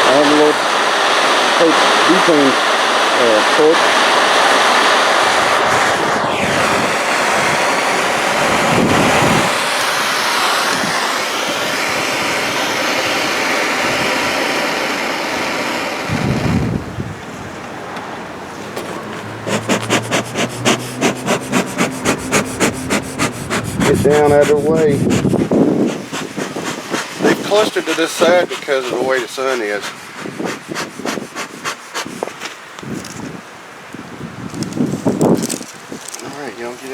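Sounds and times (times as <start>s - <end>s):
butane torch hissing: 0.0s - 32.5s
bellows puffing: 17.5s - 32.5s.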